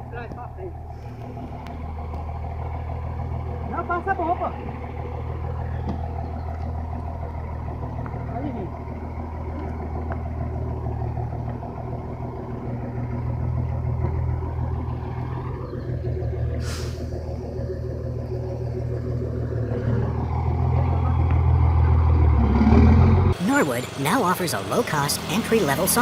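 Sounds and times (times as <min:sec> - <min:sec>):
truck engine droning: 0:00.0 - 0:26.0
burst of hiss: 0:16.6 - 0:17.1.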